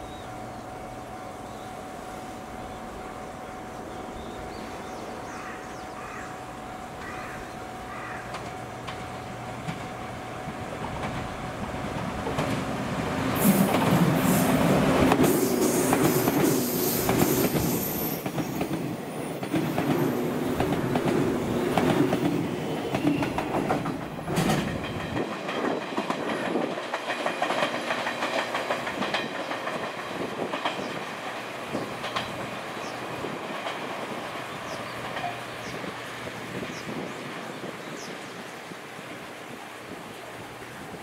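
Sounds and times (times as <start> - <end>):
train wheels clicking over rail joints: 8.2 - 10.0, 10.7 - 36.0.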